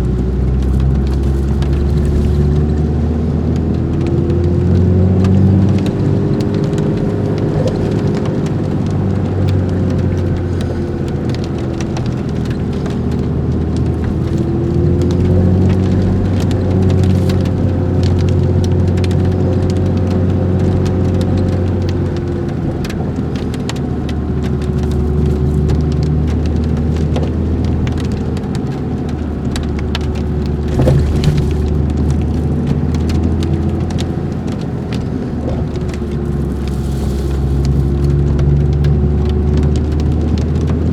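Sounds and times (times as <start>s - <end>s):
light ticks and crackles: 0.0s - 40.9s
vehicle engine droning: 0.0s - 40.9s.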